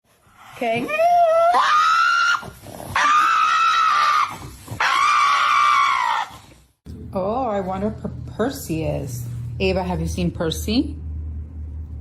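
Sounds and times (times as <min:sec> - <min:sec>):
dog howling: 0:00.8 - 0:06.5.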